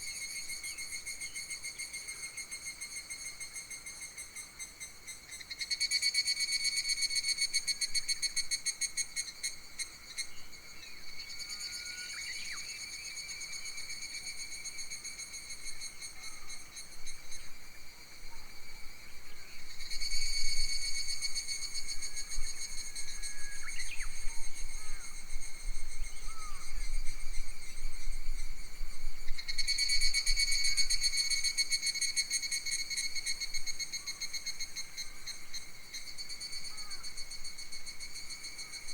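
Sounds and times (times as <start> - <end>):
wind rumble on microphone: 20.1 - 30.9.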